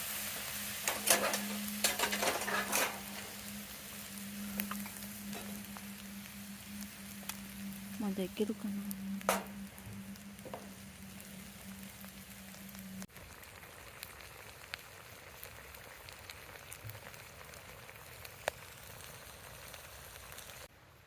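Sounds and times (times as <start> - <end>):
food sizzling in a pan: 0.0 - 20.7
oil popping: 4.2 - 6.1.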